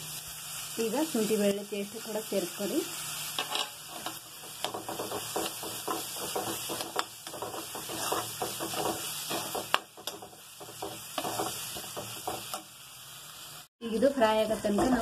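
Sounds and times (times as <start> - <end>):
onions sizzling in hot oil: 0.0 - 15.0
metal utensil scraping a pan: 3.4 - 12.6.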